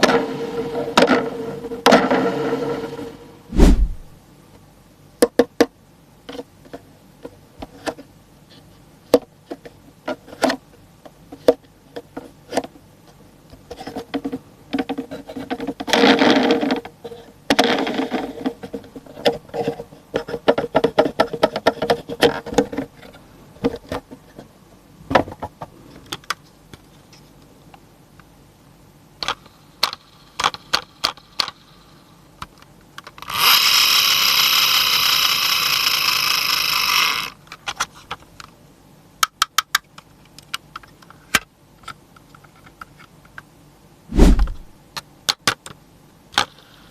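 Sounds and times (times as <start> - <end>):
toy truck clicks and taps: 29.2 - 31.6, 32.4 - 37.9, 39.2 - 43.4.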